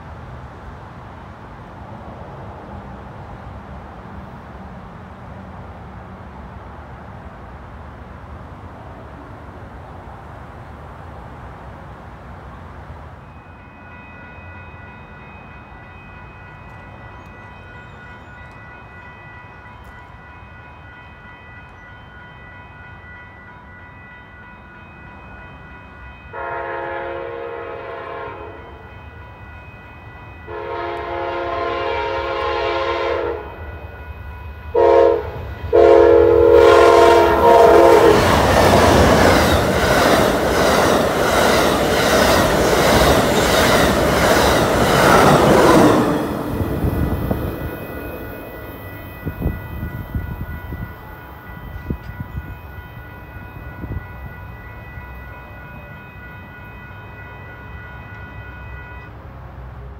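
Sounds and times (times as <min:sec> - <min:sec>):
train horn: 0:26.3 - 0:29.0, 0:30.3 - 0:38.8, 0:47.2 - 0:59.2
train wheels over rails: 0:34.2 - 0:52.5.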